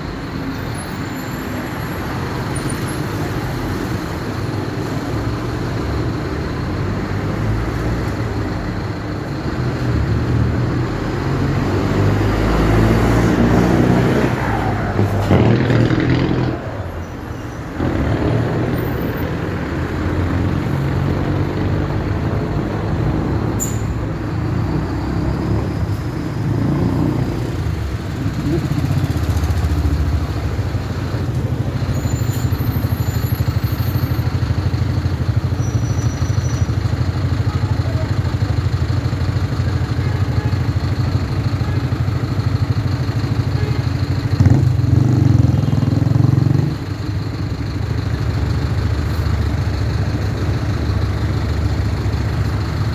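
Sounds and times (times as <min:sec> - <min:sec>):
bus diesel engine rumbling: 0:00.0 - 0:52.9.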